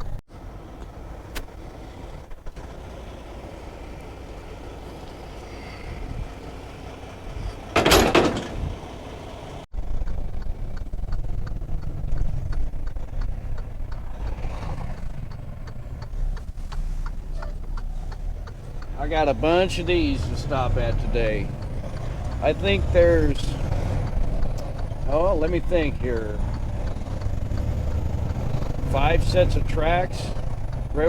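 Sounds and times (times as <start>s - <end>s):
diesel truck engine: 0.0s - 31.0s
light rattles: 9.8s - 31.0s.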